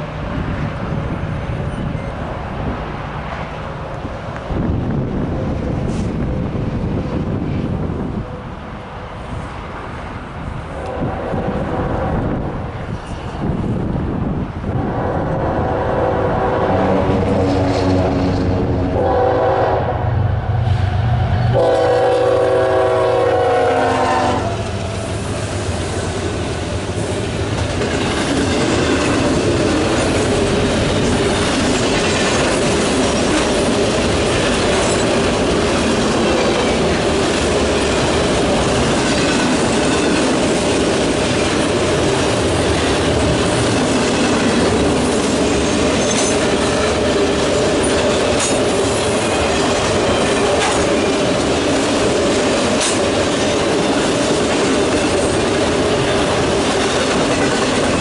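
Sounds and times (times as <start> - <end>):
freight train wheels rumbling on rail: 0.0 - 58.0.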